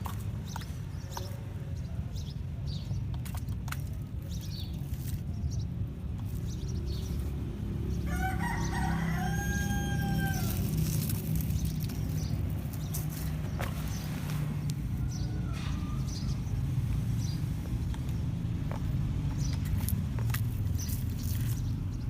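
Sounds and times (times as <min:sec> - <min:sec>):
steady low rumble: 0:02.5 - 0:22.0
rooster crowing: 0:08.0 - 0:10.7, 0:14.8 - 0:16.3.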